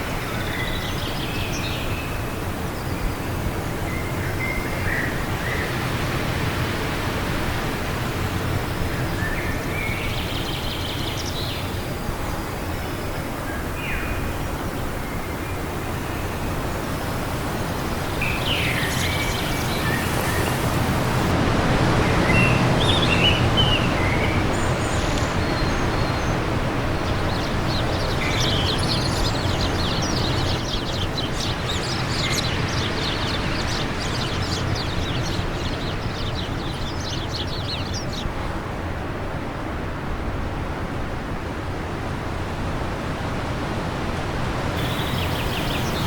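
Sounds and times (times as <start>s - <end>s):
birds chirping and twittering: 0.0s - 21.3s, 22.3s - 38.3s, 44.8s - 46.0s
wind blowing: 1.1s - 30.6s, 44.5s - 46.0s.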